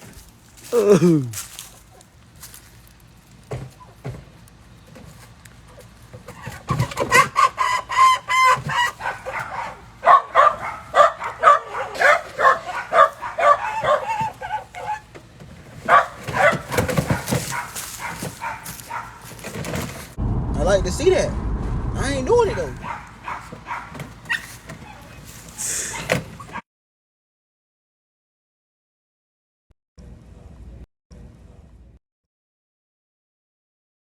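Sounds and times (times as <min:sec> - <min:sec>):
chicken squawking: 0:06.3 - 0:15.1.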